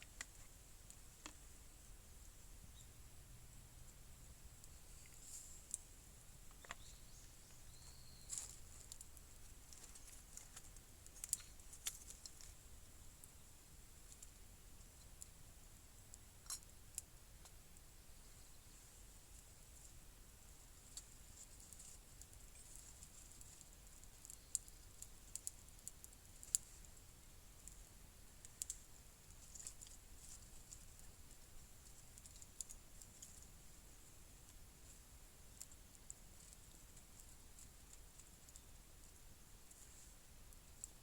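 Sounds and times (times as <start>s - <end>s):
faint steady hiss: 0.0s - 41.0s
faint light clicks and ticks: 6.5s - 12.6s, 20.8s - 33.7s, 34.4s - 41.0s
fire pops and clicks: 24.2s - 26.6s.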